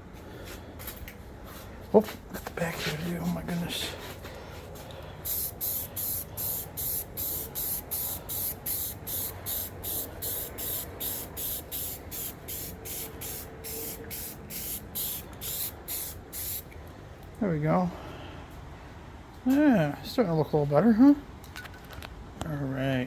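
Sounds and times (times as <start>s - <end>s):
spray paint can bursts: 5.3s - 16.7s.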